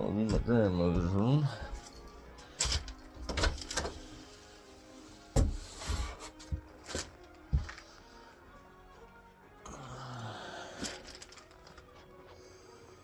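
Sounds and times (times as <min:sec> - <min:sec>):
faint background music: 0:00.0 - 0:13.0
footsteps on wooden floorboards: 0:00.3 - 0:02.0, 0:07.4 - 0:08.0.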